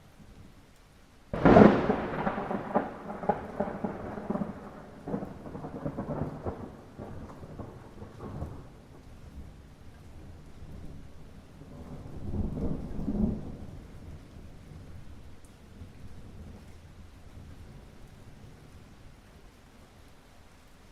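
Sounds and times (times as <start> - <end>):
steady light rain: 0.0 - 20.9
thunder clap rumbling: 1.3 - 9.0, 10.3 - 14.9.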